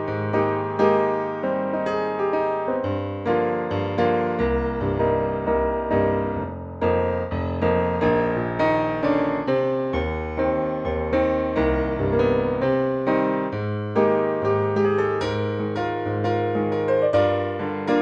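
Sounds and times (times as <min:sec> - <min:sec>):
electric piano tune with bass: 0:00.0 - 0:18.0.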